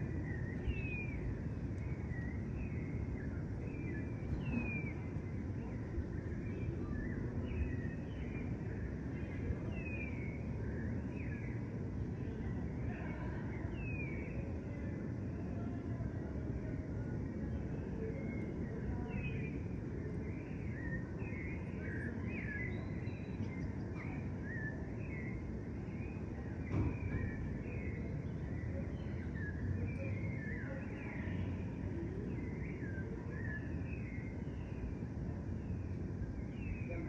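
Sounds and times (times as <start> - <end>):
steady low rumble: 0.0 - 14.0
small birds chirping: 0.0 - 37.0
brief knock: 26.7 - 27.2.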